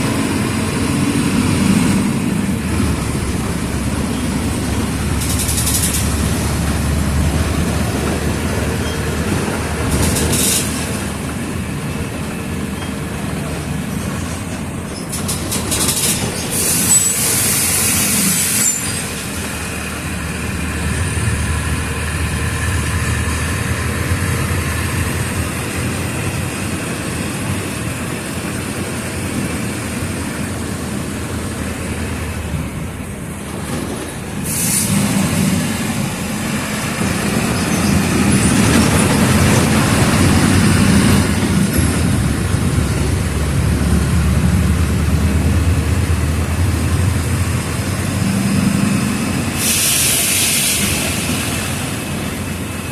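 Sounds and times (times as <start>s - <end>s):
bus diesel engine running: 0.0s - 52.9s
air hiss bursts: 15.9s - 19.2s, 34.4s - 35.5s, 49.5s - 52.2s
high squeal: 16.4s - 19.8s, 37.2s - 39.6s.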